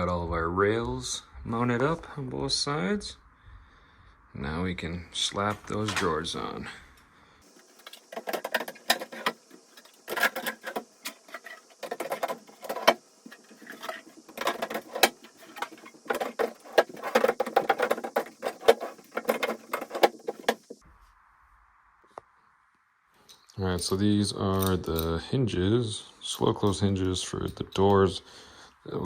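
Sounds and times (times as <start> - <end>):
drawers sliding on metal rails: 7.7 - 20.7.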